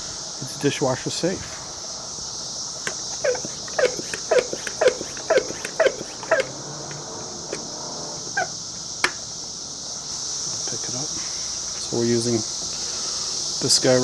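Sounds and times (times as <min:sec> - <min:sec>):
insects chirring: 0:00.0 - 0:14.0
animal calling: 0:03.1 - 0:06.7, 0:08.3 - 0:08.6.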